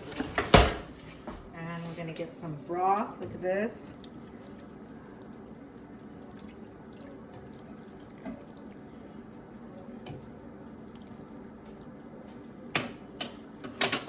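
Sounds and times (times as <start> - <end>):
liquid pouring and dripping: 3.5 - 13.6.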